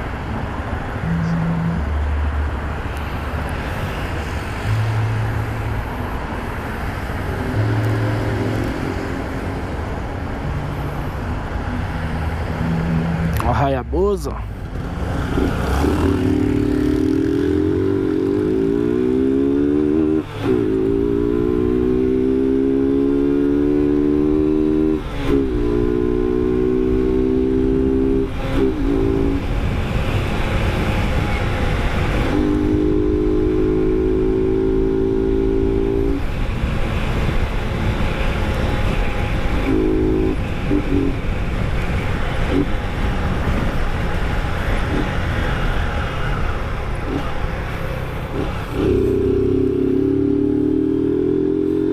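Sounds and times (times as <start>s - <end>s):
motorcycle engine accelerating: 14.6s - 41.6s, 47.0s - 51.9s
wind noise: 14.6s - 51.9s.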